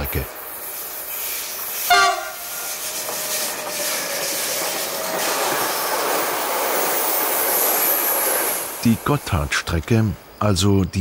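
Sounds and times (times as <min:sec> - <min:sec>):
locomotive horn blast: 0:01.9 - 0:02.8.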